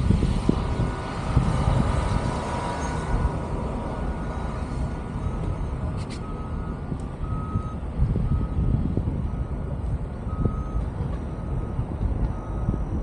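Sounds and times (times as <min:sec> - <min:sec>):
reversing alarm beeping: 0:05.1 - 0:09.7, 0:10.3 - 0:13.0.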